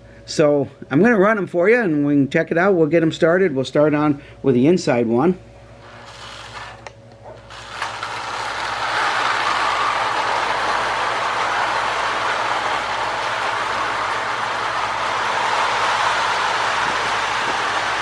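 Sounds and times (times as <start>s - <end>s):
toy train clicks: 5.8s - 6.9s, 7.5s - 18.0s
toy train whirring rattle: 5.8s - 18.0s.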